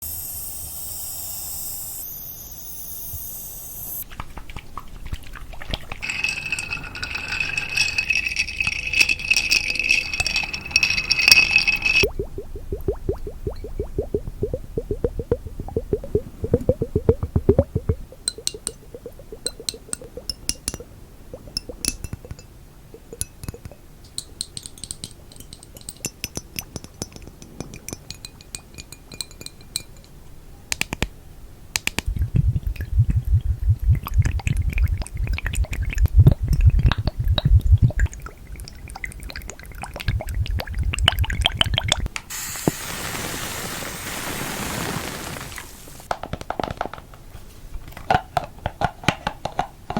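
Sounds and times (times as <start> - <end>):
glass ringing: 6.0 - 12.2, 18.2 - 23.6
steady hiss: 42.2 - 46.1.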